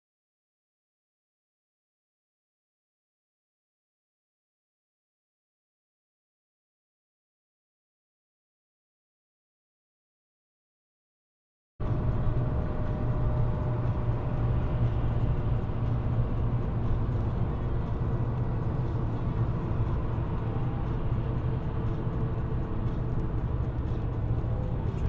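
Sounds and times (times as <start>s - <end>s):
car engine and road noise: 11.8s - 25.0s.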